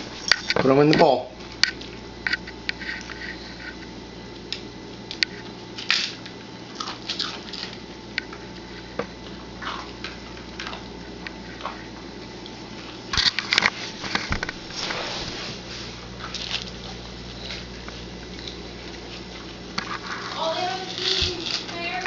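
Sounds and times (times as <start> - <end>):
steady low hum: 0.0 - 22.0
soft rustles: 13.7 - 16.5.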